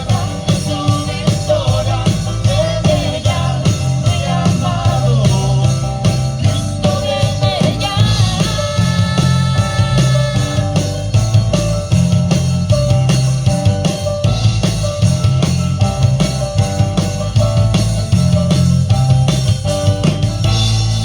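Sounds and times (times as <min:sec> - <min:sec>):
person singing: 0:00.0 - 0:11.0
rock band playing: 0:00.0 - 0:21.0.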